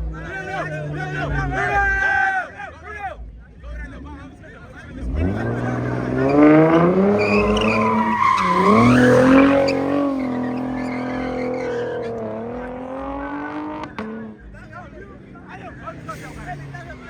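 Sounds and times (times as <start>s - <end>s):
car engine revving: 0.0s - 2.0s, 4.2s - 17.0s
tyres squealing: 5.2s - 12.5s.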